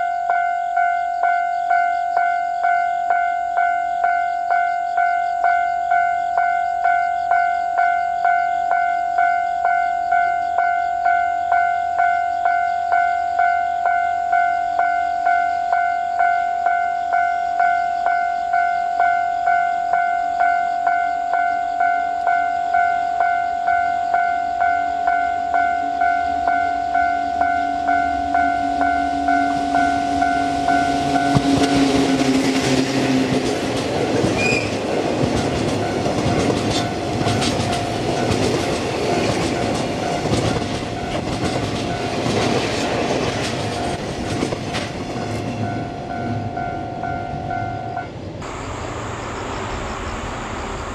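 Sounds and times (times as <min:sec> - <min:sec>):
warning bell ringing: 0:00.0 - 0:32.8, 0:45.3 - 0:48.2
freight train wheels clattering: 0:29.2 - 0:46.5.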